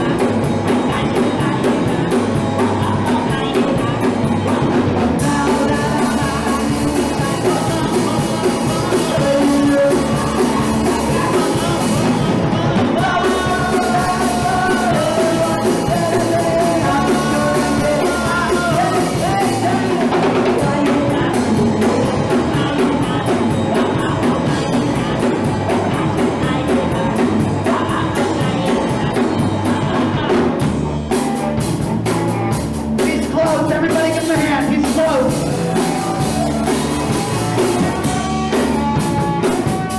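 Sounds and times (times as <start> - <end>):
bass guitar: 0.0 - 39.9
distorted electric guitar: 0.0 - 39.9
drum kit: 0.0 - 39.9
shouted vocals: 33.1 - 39.9.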